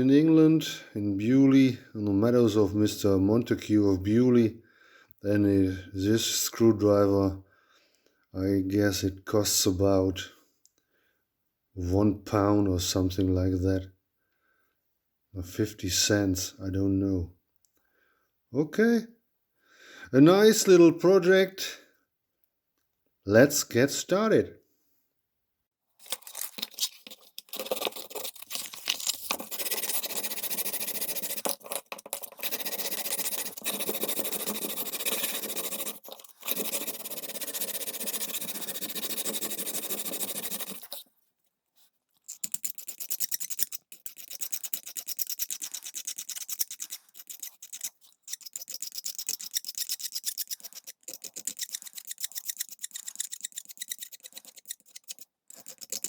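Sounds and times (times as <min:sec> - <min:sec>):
abrasive scraping on screwdriver: 0:26.0 - 0:41.1, 0:42.2 - 0:56.0.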